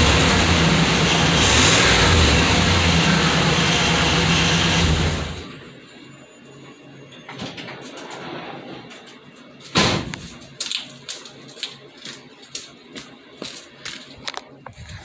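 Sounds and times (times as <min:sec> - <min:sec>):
truck engine shutting off: 0:00.0 - 0:05.8.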